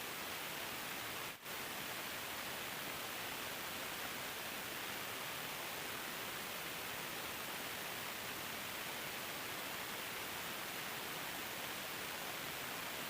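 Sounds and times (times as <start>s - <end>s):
steady static hiss: 0.0s - 13.0s.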